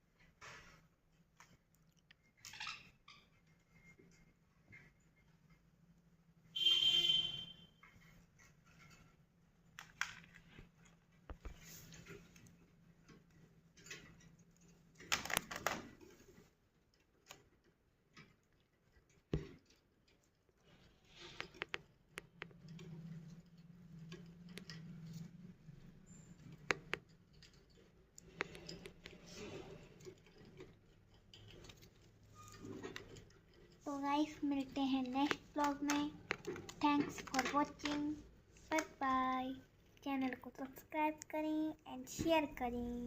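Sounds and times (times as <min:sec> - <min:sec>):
birds scratching and pecking: 0:07.8 - 0:38.9.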